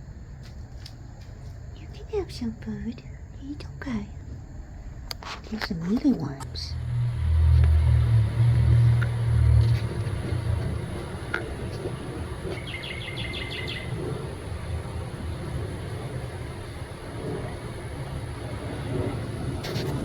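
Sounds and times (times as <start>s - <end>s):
steady low rumble: 0.0s - 20.0s
small bird chirping: 8.6s - 14.5s.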